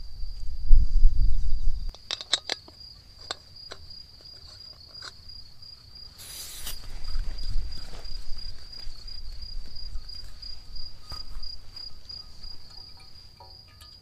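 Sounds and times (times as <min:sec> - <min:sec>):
cricket trilling: 0:00.0 - 0:14.0
short hiss: 0:06.2 - 0:07.2.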